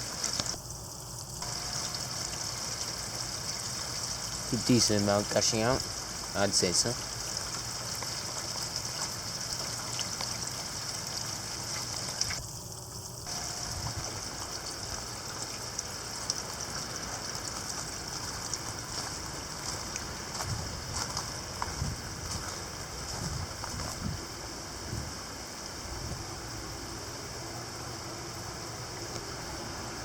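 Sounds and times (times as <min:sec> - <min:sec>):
heavy rain gushing and splashing: 0:01.4 - 0:12.4, 0:13.2 - 0:22.1.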